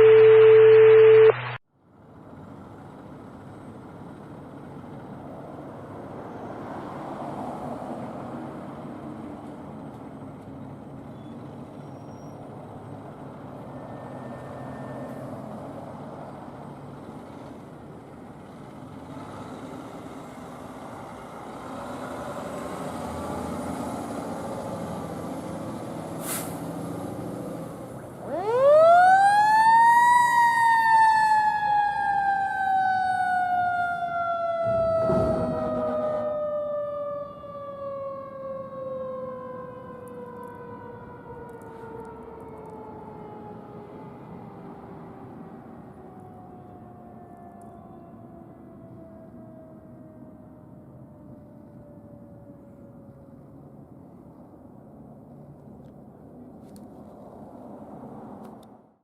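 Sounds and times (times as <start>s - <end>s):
loud steady tone: 0.0s - 1.6s
siren wailing: 0.0s - 1.6s, 13.6s - 15.5s, 28.0s - 53.2s
fire engine motor rumbling: 1.8s - 59.0s.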